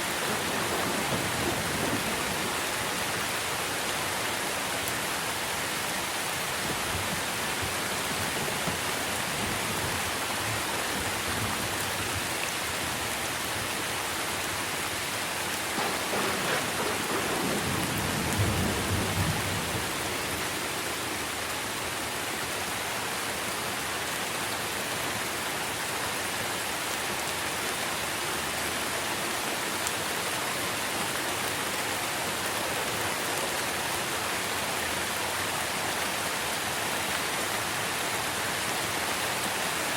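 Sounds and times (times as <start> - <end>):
thunder rumbling: 0.0 - 3.2, 15.7 - 20.6
rain falling on leaves: 0.0 - 39.9.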